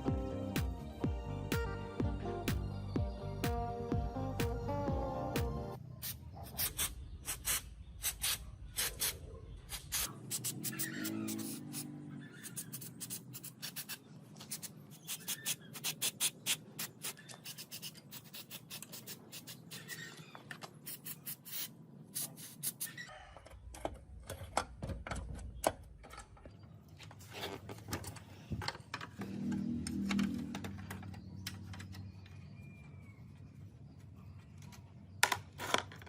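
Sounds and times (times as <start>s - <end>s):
rapid scraping strokes: 6.0s - 20.2s.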